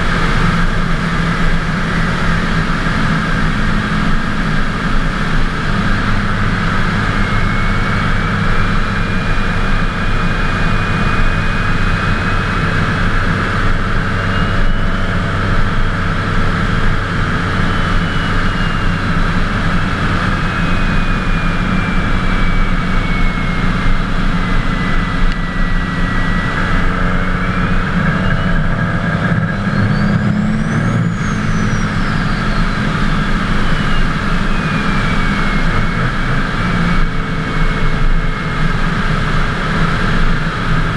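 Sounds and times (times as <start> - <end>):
diesel engine running: 0.0 - 40.9
turbo whistle: 20.3 - 38.6.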